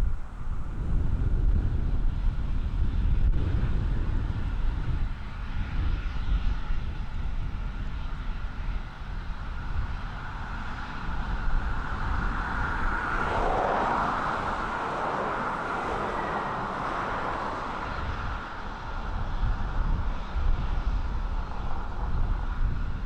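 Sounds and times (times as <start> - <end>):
aircraft engine passing: 0.0 - 23.0
wind rumble on microphone: 0.0 - 23.0.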